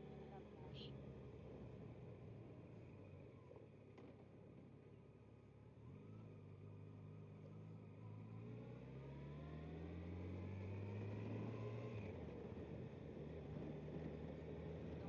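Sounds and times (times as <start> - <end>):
motorcycle engine accelerating: 5.8 - 15.0.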